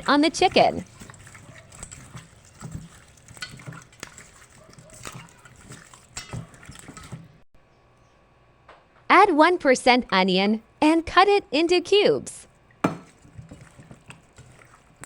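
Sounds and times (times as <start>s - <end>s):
wet squelches of meat in bowl: 0.0s - 7.4s, 12.5s - 15.0s.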